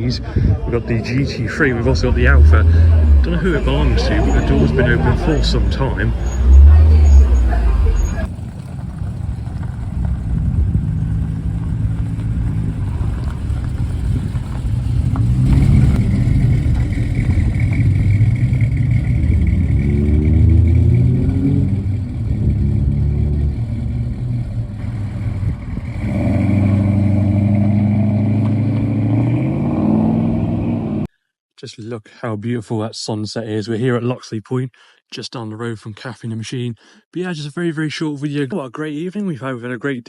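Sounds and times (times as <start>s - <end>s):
car engine running: 0.8s - 29.6s.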